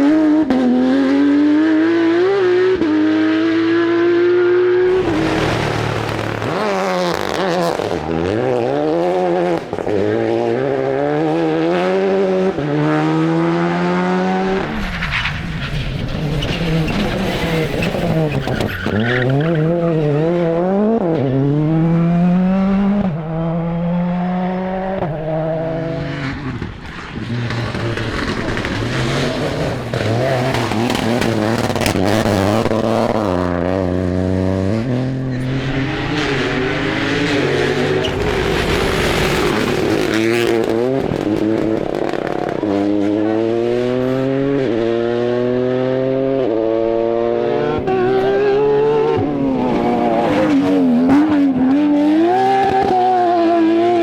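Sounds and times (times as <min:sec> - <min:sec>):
rally cars accelerating: 0:00.0 - 0:54.0
tyre noise: 0:04.9 - 0:08.0, 0:13.8 - 0:20.6, 0:21.5 - 0:42.6.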